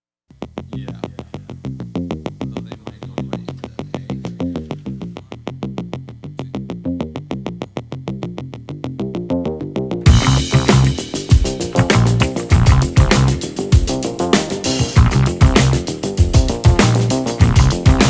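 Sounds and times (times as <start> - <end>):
low synth melody: 9.4 - 18.0.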